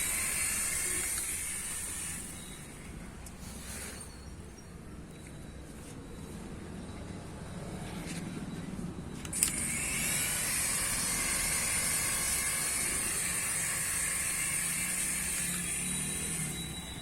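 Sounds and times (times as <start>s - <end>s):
toy helicopter rotor whirring: 0.0s - 2.8s, 9.2s - 17.0s.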